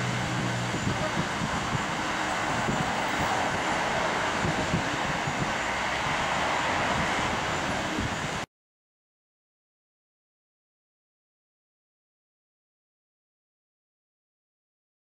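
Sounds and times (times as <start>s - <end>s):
jet engines rushing: 0.0s - 8.5s.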